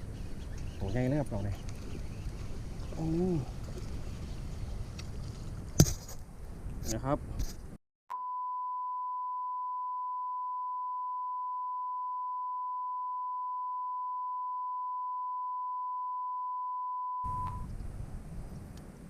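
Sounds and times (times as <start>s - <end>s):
outdoor sound: 0.0s - 19.0s
steady bleep tone: 8.1s - 17.7s.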